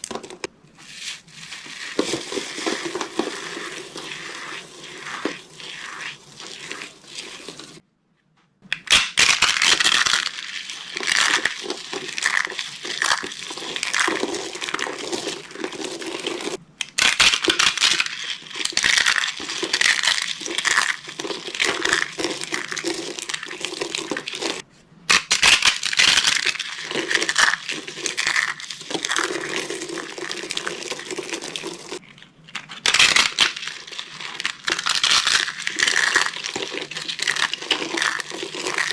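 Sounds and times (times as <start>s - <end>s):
soap crumbling crunches: 8.7s - 38.9s.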